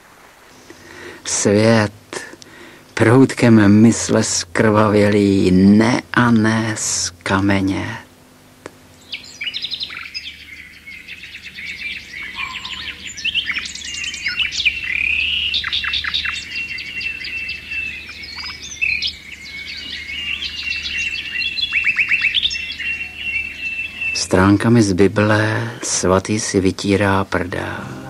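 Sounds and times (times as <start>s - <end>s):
birds singing: 8.8s - 28.0s
thin steady high note: 27.6s - 28.0s.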